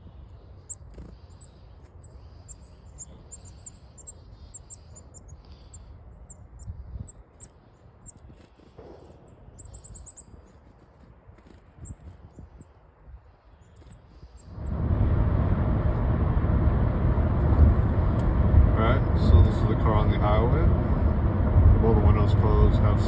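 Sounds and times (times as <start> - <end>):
chickadees chirping: 0.0 - 10.6.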